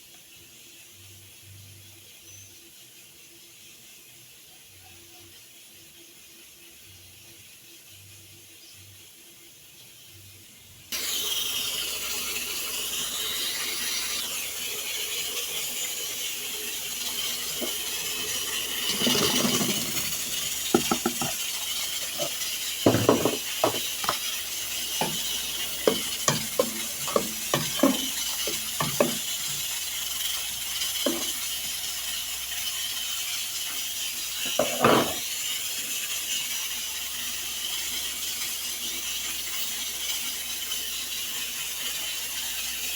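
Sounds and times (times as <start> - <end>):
cooking hiss: 0.0 - 42.9
spoon scraping a pan: 17.2 - 31.6, 34.4 - 35.3.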